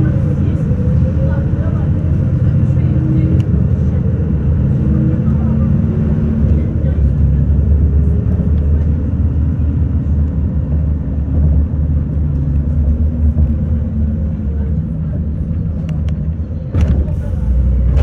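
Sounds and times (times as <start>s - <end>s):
bus engine droning: 0.0s - 18.0s.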